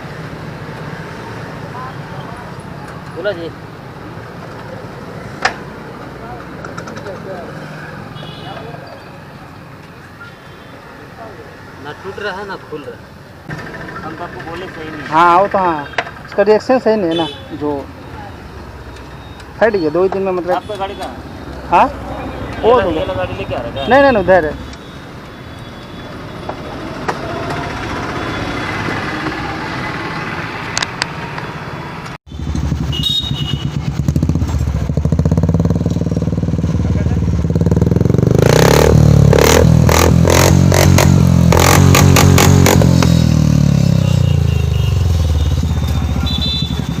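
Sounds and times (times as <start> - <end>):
motorcycle engine running: 32.3 - 47.0.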